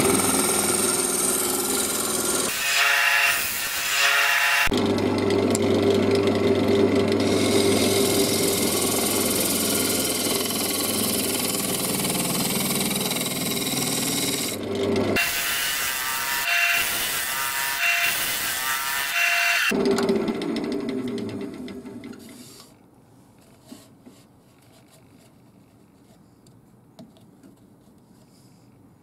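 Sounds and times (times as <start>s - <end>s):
wood lathe motor hum: 0.0s - 15.4s
turning tool cutting wood: 0.0s - 22.3s.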